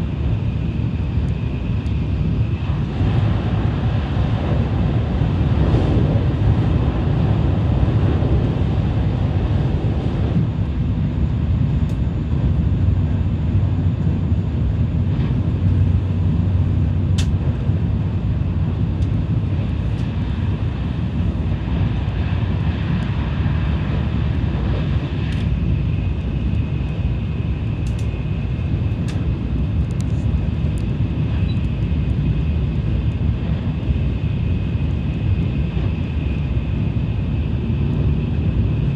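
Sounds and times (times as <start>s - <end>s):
train rumble inside car: 0.0s - 38.9s
faint high whine: 31.3s - 31.8s.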